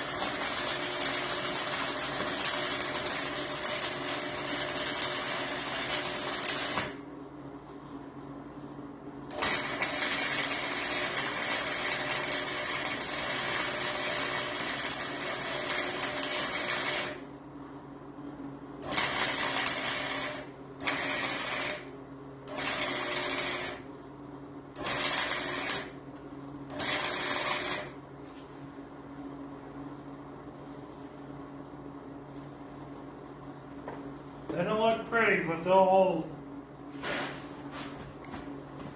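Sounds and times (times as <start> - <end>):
welder arcing: 0.0 - 7.0, 9.3 - 17.3, 18.8 - 21.9, 22.5 - 23.9, 24.8 - 26.0, 26.7 - 28.0
steady hum: 0.0 - 38.9.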